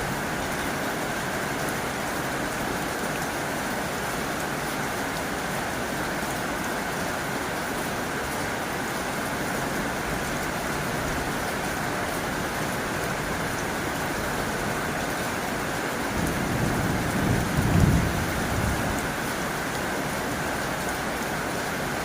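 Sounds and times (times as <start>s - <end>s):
heavy rain on a tin roof: 0.0s - 22.0s
low rumble of thunder: 16.2s - 19.2s.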